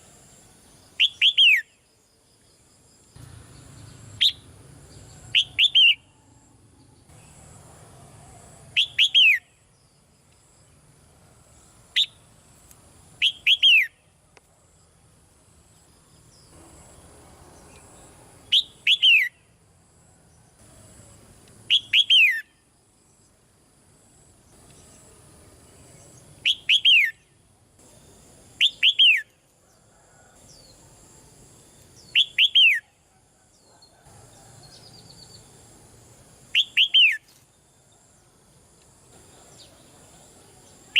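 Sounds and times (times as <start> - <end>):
bulbul chirping: 4.1 - 4.5, 5.3 - 6.1, 13.2 - 14.0, 28.6 - 29.3, 32.1 - 32.9, 36.6 - 37.2.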